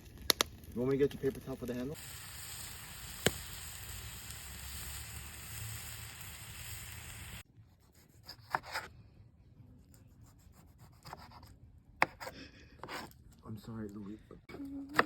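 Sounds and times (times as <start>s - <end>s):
food sizzling in a pan: 1.2s - 7.4s.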